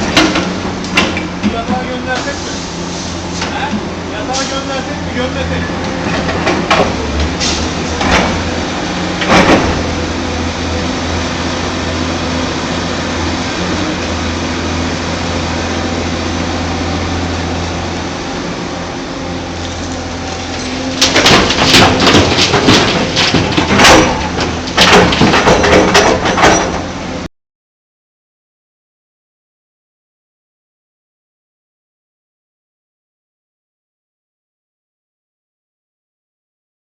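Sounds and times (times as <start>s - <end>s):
excavator diesel engine running: 0.0s - 27.3s
material clattering on steel: 19.7s - 26.9s.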